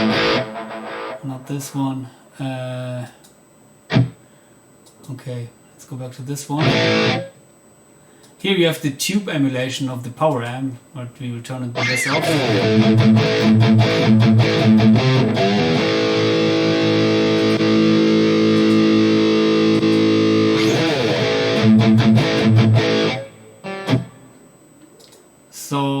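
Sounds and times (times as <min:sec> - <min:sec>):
distorted electric guitar chugging: 0:00.0 - 0:01.8, 0:03.9 - 0:04.2, 0:06.6 - 0:07.4, 0:11.7 - 0:24.3.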